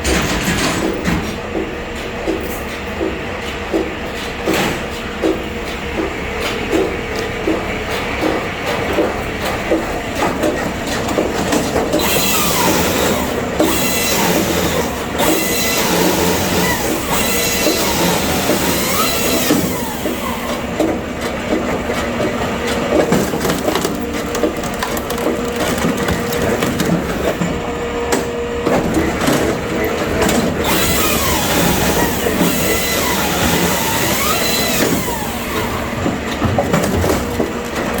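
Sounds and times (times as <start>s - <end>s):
firewood machinery rattling: 10.2s - 27.7s
machine squeals: 12.0s - 20.6s
wood knocking and cracking: 23.2s - 27.2s.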